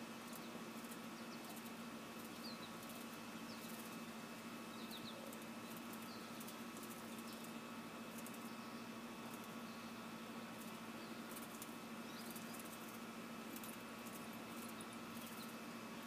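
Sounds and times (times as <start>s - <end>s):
small birds chirping: 0.0s - 16.0s
steady low hum: 0.0s - 16.0s
high crackly clicks: 5.3s - 8.5s, 10.6s - 15.6s.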